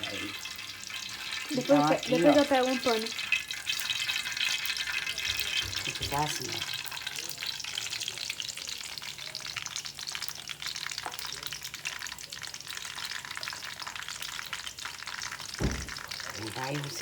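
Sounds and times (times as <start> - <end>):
batter sizzling in oil: 0.0 - 17.0.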